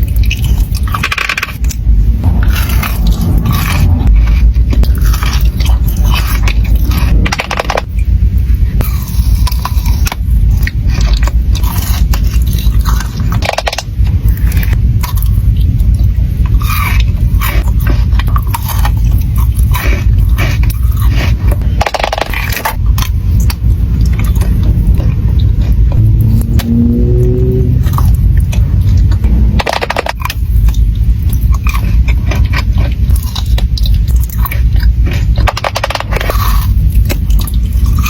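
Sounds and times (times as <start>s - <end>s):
chocolate chewing and crunching: 0.0s - 38.0s
low rumble from mouth: 0.0s - 38.0s.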